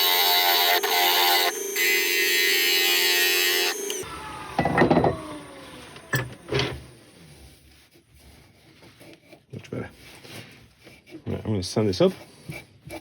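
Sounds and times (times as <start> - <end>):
tool cutting wood: 0.0 - 7.2
wood lathe motor hum: 0.0 - 7.3.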